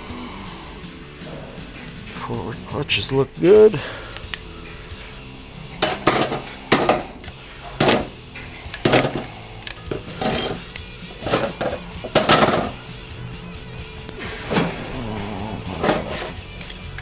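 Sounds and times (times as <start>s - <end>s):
metal clutch parts clanking: 4.2s - 17.0s.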